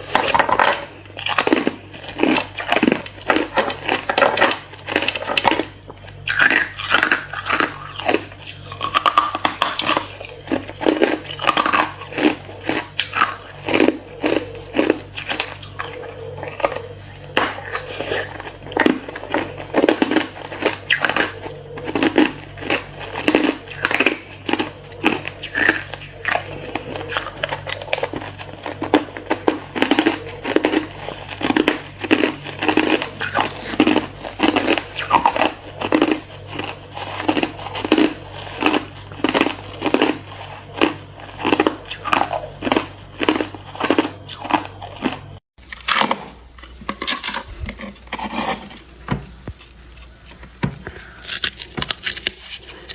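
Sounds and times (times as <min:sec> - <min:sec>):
ice being chewed: 0:00.0 - 0:52.9
low steady hum: 0:00.0 - 0:52.9.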